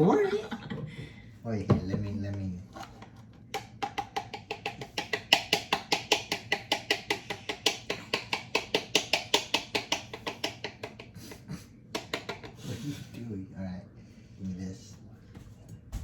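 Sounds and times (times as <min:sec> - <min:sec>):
utensil beating against mixing bowl: 0:03.5 - 0:12.6.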